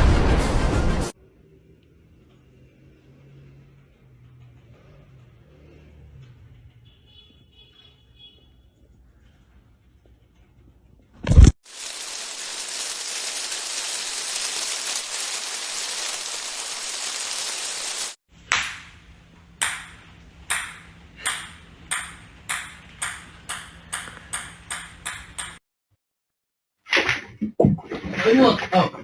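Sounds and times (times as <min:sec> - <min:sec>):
steady hiss: 0:11.7 - 0:18.2.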